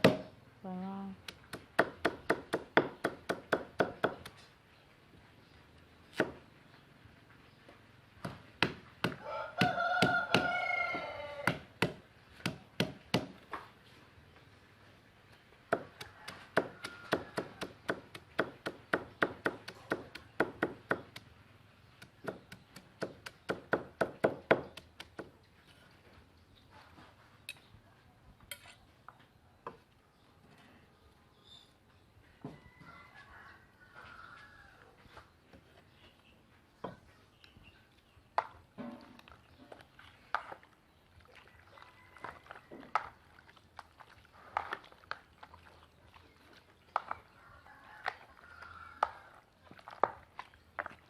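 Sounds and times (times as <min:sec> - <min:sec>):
knife chopping shallots: 0:01.2 - 0:04.4, 0:11.4 - 0:13.4, 0:15.7 - 0:21.3, 0:22.0 - 0:25.3.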